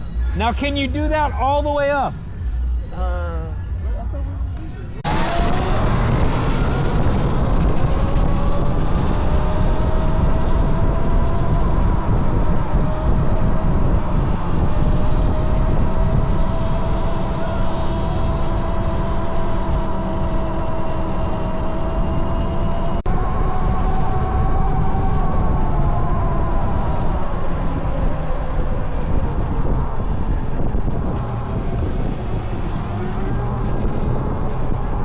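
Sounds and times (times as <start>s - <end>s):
wind rumble on microphone: 0.0s - 35.0s.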